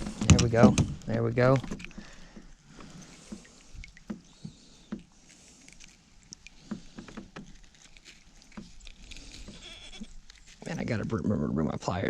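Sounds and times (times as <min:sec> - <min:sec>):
light knocks and taps on kayak: 0:00.0 - 0:05.1.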